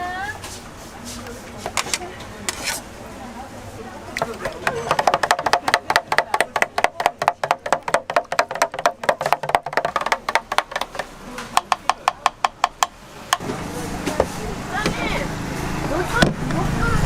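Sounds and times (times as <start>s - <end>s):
knife chopping on cutting board: 4.4s - 12.9s.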